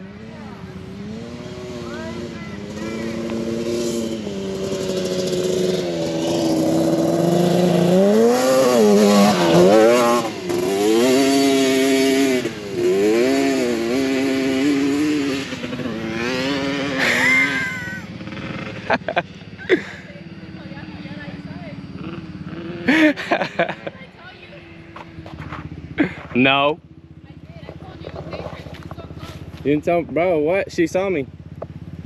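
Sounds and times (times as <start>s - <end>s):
racing engine revving hard: 1.0s - 19.2s.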